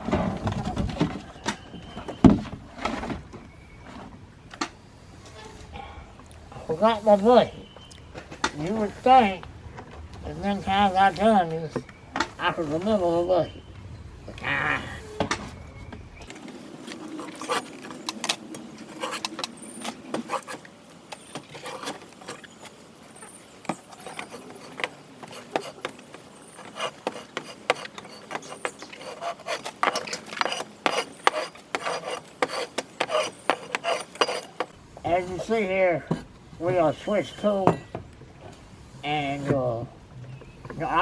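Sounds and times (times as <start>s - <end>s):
hand tool scraping and knocking: 16.3s - 34.8s.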